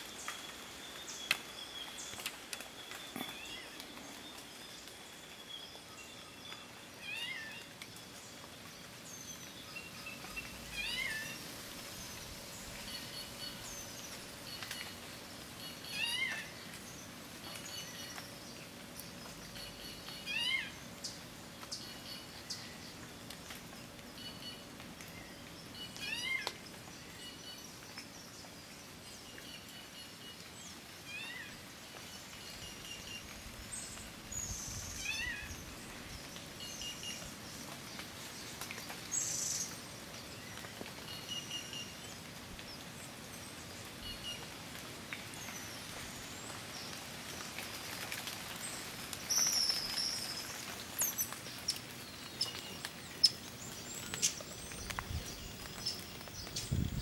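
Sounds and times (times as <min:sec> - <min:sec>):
birds chirping and whistling: 0:49.3 - 0:57.0.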